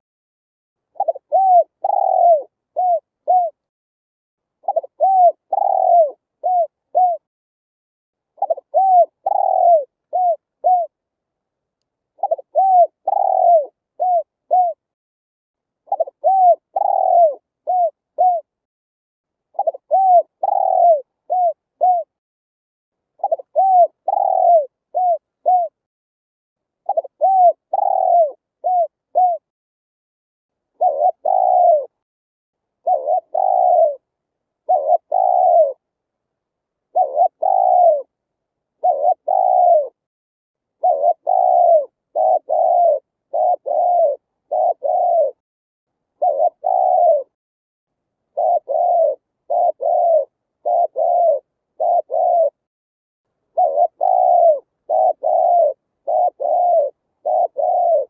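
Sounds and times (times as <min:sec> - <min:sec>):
dove cooing: 0:00.9 - 0:03.6, 0:04.6 - 0:07.3, 0:08.4 - 0:11.0, 0:12.2 - 0:14.8, 0:15.9 - 0:18.5, 0:19.6 - 0:22.2, 0:23.2 - 0:25.8, 0:26.9 - 0:29.5, 0:30.8 - 0:32.0, 0:32.8 - 0:35.8, 0:36.9 - 0:38.1, 0:38.8 - 0:40.0, 0:40.8 - 0:45.4, 0:46.2 - 0:47.4, 0:48.3 - 0:52.7, 0:53.5 - 0:58.0.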